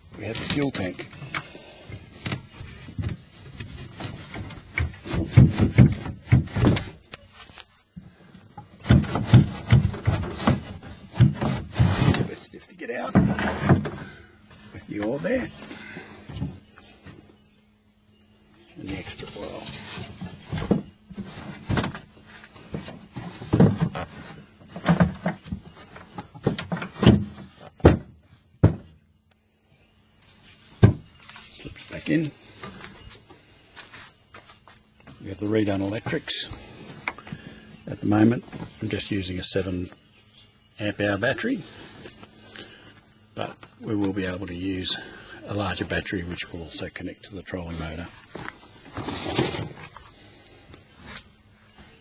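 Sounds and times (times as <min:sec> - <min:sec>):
fuel tank scraping and rubbing: 0:00.2 - 0:16.7, 0:18.8 - 0:27.7, 0:47.7 - 0:51.4
knocks and bumps: 0:03.0 - 0:07.0, 0:08.6 - 0:12.4, 0:13.0 - 0:14.2
fuel tank scraping: 0:08.4 - 0:16.7, 0:47.8 - 0:51.4.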